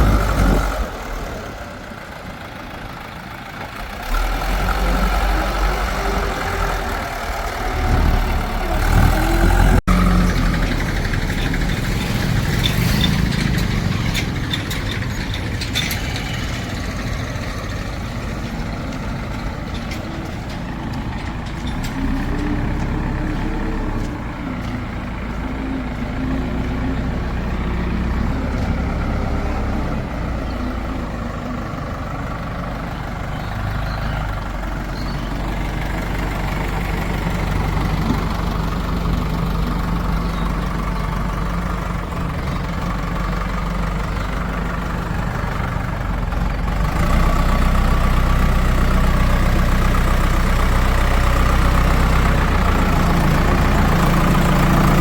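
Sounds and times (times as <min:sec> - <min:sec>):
diesel machinery running: 0:00.0 - 0:55.0
metallic clanks: 0:18.3 - 0:24.8.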